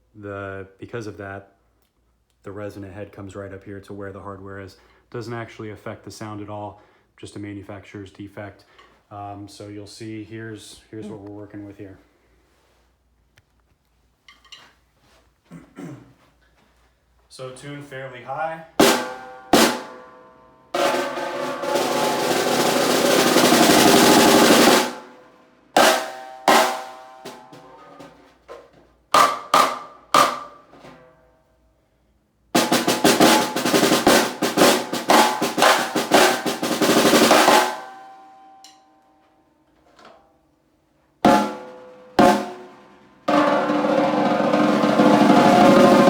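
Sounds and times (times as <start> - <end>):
snare drum strokes and rolls: 18.8 - 20.0, 20.8 - 25.2, 25.8 - 28.1, 29.2 - 30.9, 32.6 - 38.0, 41.2 - 46.0.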